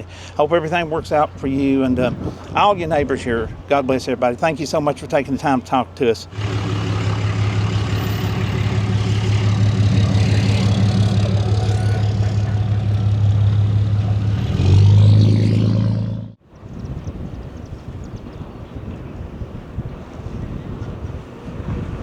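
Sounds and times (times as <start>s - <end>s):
vehicle engine running: 6.3s - 16.4s.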